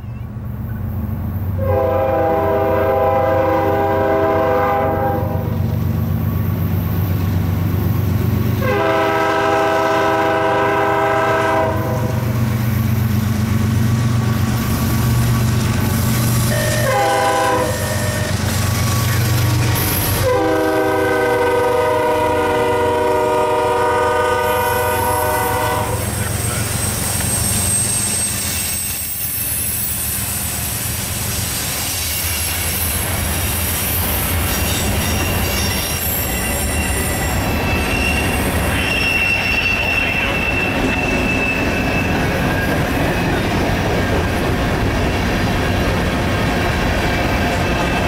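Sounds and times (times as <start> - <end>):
diesel locomotives rumbling: 0.0 - 48.0
train air horn: 1.6 - 5.6, 8.6 - 12.3, 16.4 - 18.5, 20.2 - 26.7
train wheel clatter: 5.5 - 48.0
wheel squeal: 26.0 - 44.2.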